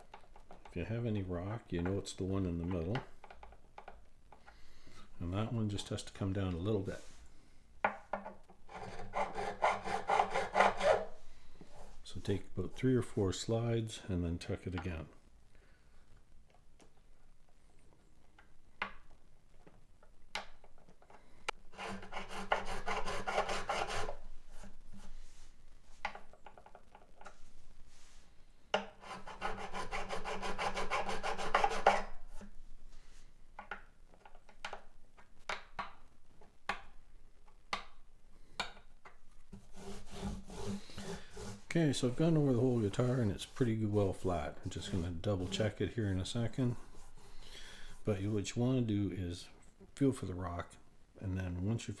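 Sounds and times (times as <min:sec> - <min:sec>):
file scraping guitar frets: 0:08.7 - 0:11.2, 0:21.8 - 0:25.1, 0:29.0 - 0:32.5, 0:39.6 - 0:48.4.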